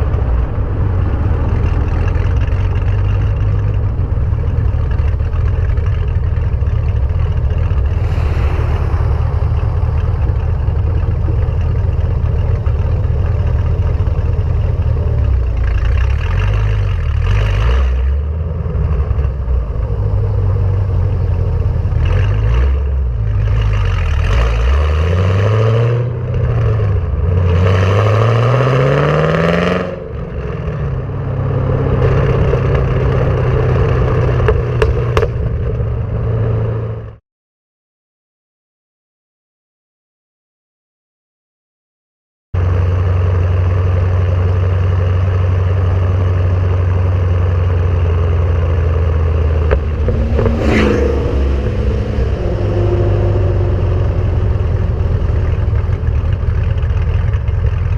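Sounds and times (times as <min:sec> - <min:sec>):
car engine rumbling and revving: 0:00.0 - 0:37.2, 0:42.6 - 0:57.9.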